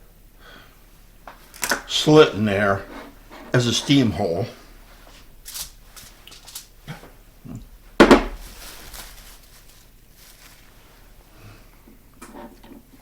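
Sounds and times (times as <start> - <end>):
loud knock of dish set down: 8.0 - 8.4.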